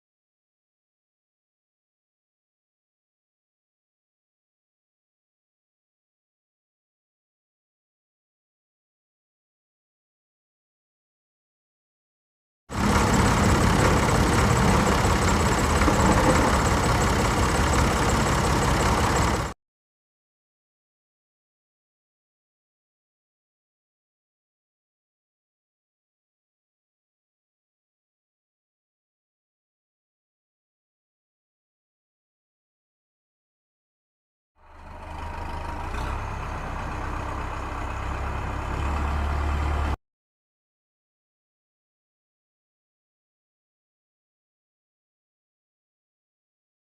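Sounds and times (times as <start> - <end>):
tractor engine running: 12.7 - 19.6, 34.6 - 40.0.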